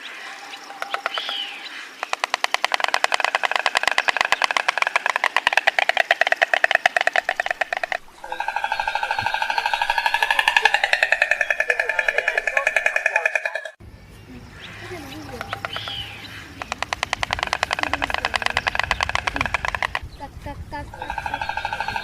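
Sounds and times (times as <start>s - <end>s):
stork bill clattering: 0.8s - 22.0s.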